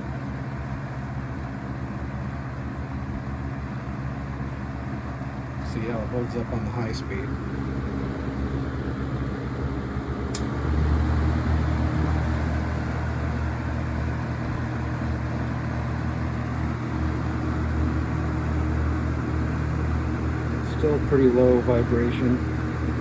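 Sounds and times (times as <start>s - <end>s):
fan motor hum and air rush: 0.0s - 23.0s
fan switch click: 10.3s - 10.6s.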